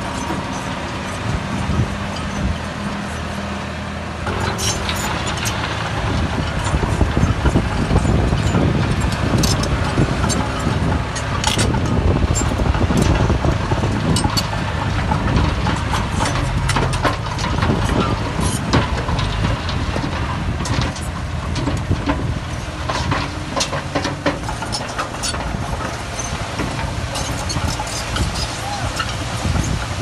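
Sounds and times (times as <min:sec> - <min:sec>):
heavy diesel machinery rumbling: 0:00.0 - 0:30.0
sharp metal clanks and knocks: 0:04.2 - 0:07.6, 0:08.3 - 0:13.3, 0:14.1 - 0:29.7.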